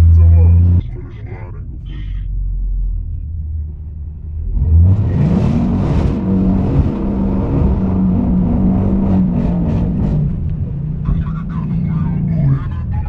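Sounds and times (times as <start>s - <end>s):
car engine revving hard: 4.5s - 12.9s.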